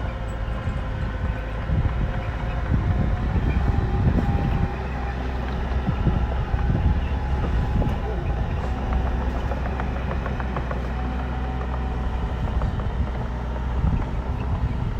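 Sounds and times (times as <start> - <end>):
bulldozer diesel engine rumbling: 0.0 - 14.9.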